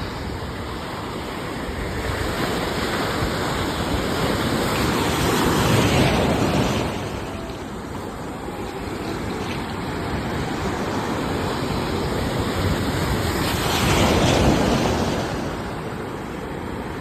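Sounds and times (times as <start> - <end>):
sea waves washing onto shore: 0.0 - 17.0.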